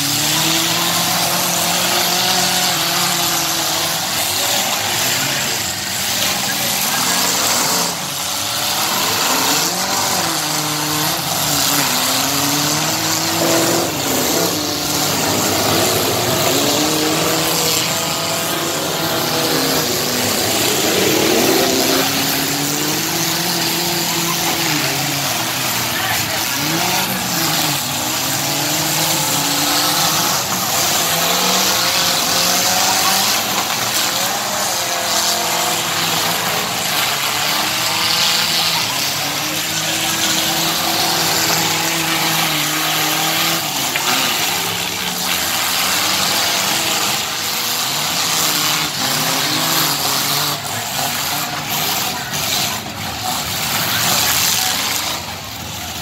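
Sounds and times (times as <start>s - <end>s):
car and truck engines revving: 0.0s - 56.0s
thick wash of noise: 0.0s - 56.0s.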